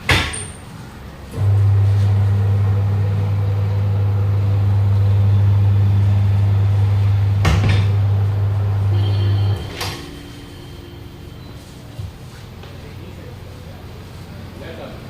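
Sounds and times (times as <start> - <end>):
electric motor humming: 1.3 - 12.1.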